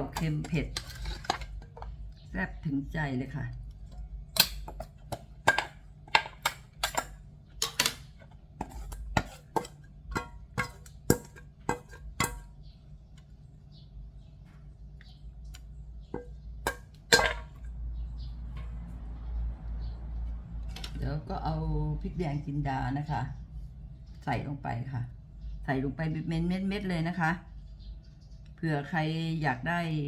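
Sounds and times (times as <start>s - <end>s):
utensils clinking against dishes: 0.0s - 2.0s, 4.4s - 12.5s, 16.1s - 17.6s.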